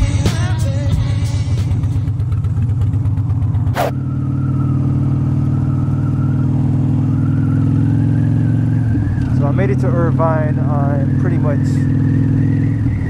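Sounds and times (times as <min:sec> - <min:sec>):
motorcycle engine running: 0:00.0 - 0:13.0
short rushing noise: 0:03.7 - 0:04.0.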